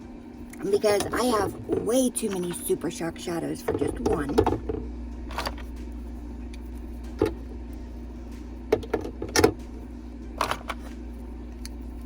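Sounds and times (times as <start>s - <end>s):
steady low hum: 0.0s - 12.0s
makeup pots clicking and knocking: 0.7s - 2.6s, 3.6s - 5.5s.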